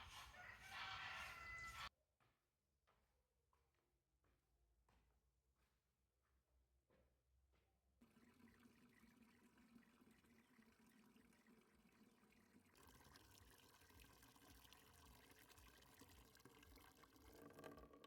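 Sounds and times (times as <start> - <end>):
liquid pouring: 8.0 - 18.0.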